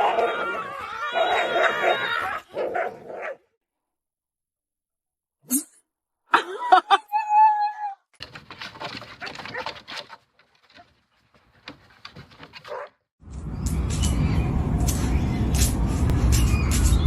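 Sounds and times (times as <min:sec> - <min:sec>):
dog yelping and whining: 0:00.0 - 0:03.3
rustling and clicking: 0:08.2 - 0:14.2.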